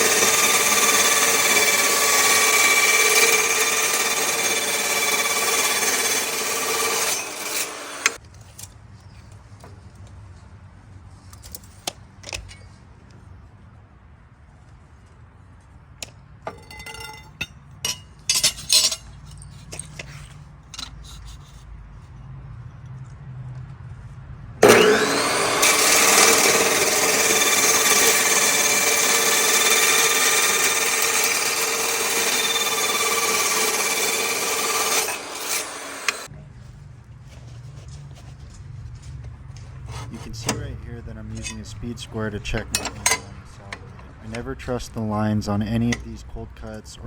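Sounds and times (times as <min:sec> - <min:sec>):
saw cutting steel tube: 0:00.0 - 0:08.2, 0:24.6 - 0:36.3, 0:41.3 - 0:41.9
steel knocks and taps: 0:16.5 - 0:20.1.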